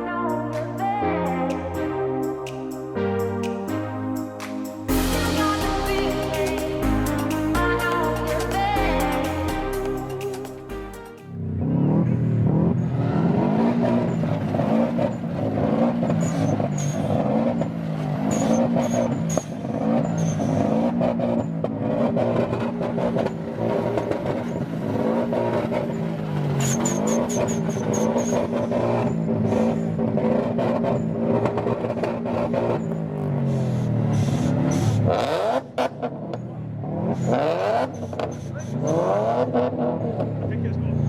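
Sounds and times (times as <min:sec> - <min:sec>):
car engine revving hard: 0:11.4 - 0:41.0.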